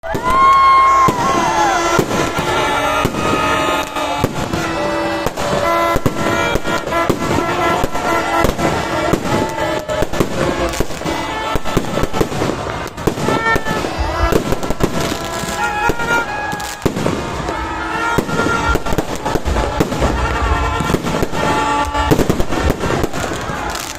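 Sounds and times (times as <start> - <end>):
fireworks bangs and crackling: 0.0 - 23.9.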